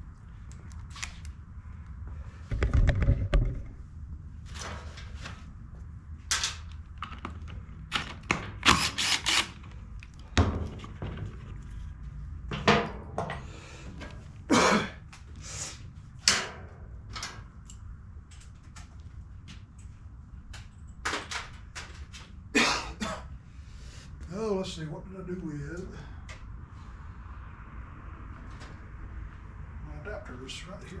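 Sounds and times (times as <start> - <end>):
steady low hum: 0.0 - 21.1.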